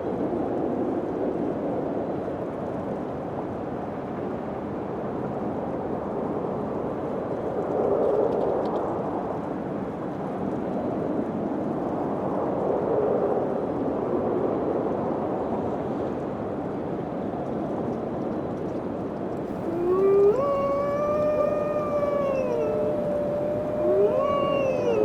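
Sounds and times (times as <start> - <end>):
animal howl rising in pitch: 19.5 - 25.0
wind blowing: 19.5 - 25.0.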